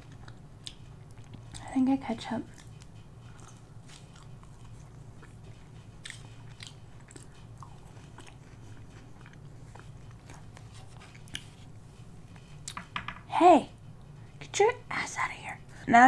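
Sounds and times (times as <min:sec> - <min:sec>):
chewing fries crunches: 0:00.0 - 0:01.8, 0:02.4 - 0:11.5
air conditioner hum: 0:00.0 - 0:16.0.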